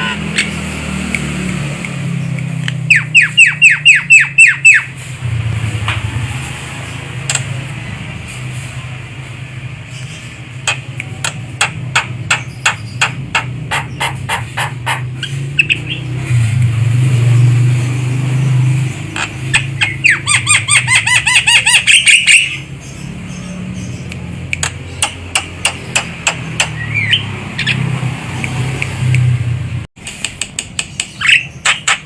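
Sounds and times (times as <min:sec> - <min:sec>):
bird harsh chirps: 0:02.0 - 0:05.0, 0:09.8 - 0:16.2, 0:18.9 - 0:28.0, 0:30.8 - 0:32.0
bird sharp clicks: 0:10.0 - 0:15.0, 0:24.0 - 0:27.8, 0:30.0 - 0:32.0.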